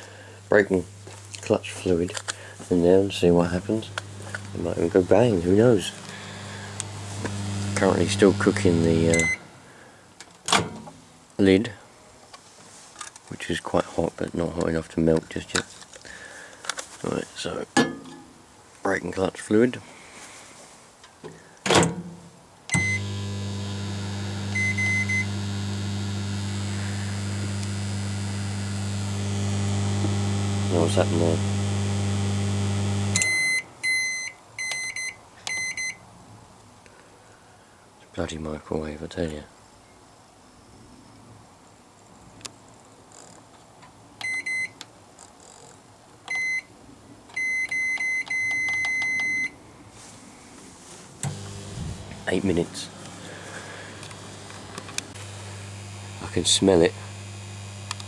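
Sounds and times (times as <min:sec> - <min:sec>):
microwave oven humming: 0:03.2 - 0:09.7, 0:22.7 - 0:33.4, 0:51.2 - 0:58.0
microwave keypad beeps: 0:07.5 - 0:09.4, 0:22.8 - 0:25.5, 0:33.2 - 0:36.0, 0:44.2 - 0:44.8, 0:46.3 - 0:46.7, 0:47.4 - 0:49.5
short keypad beeps: 0:47.4 - 0:49.5.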